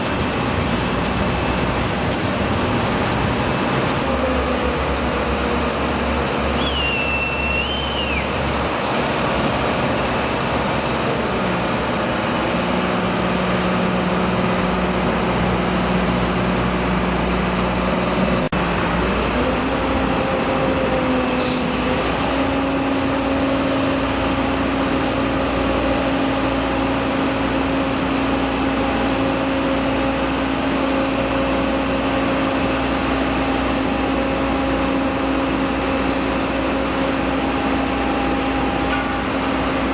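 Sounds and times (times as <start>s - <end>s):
large engine running: 0.0s - 39.9s
short high squeal: 6.6s - 8.4s.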